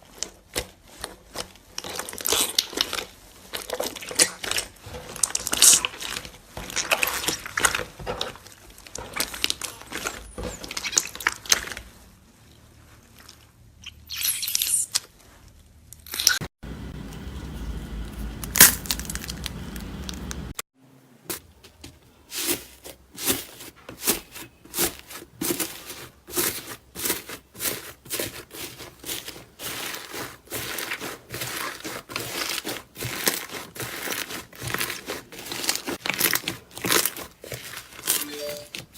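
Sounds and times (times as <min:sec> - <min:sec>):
low steady rumble: 0:16.6 - 0:20.6
slime crackling and popping: 0:18.4 - 0:20.3, 0:25.6 - 0:38.3.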